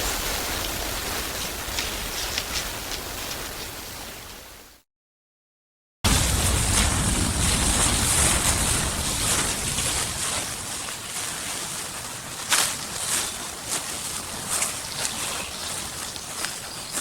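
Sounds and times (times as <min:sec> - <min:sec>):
dry leaves crackling: 0:00.0 - 0:04.4, 0:06.1 - 0:17.0
wind buffeting microphone: 0:06.1 - 0:11.6.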